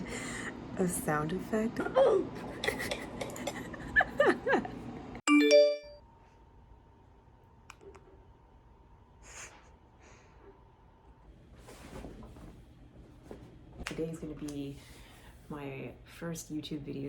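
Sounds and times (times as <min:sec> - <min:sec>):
bright bell-like chime: 0:05.3 - 0:06.0.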